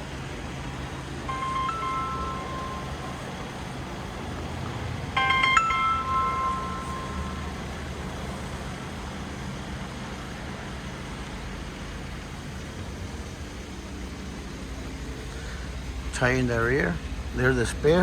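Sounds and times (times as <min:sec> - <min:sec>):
chime ringing: 0:01.3 - 0:04.4, 0:05.1 - 0:08.0.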